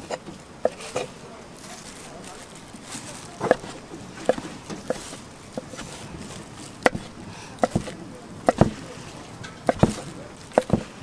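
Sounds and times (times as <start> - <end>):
knife chopping on wooden board: 0.1 - 1.1, 3.4 - 6.0, 6.8 - 8.8, 9.6 - 11.0.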